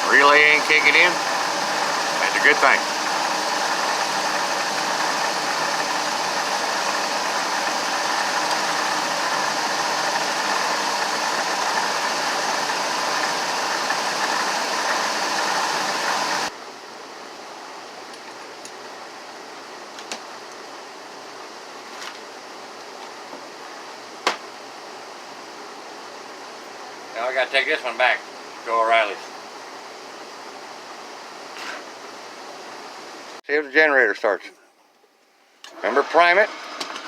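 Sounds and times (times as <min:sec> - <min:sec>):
engine idling drone: 0:00.0 - 0:16.5.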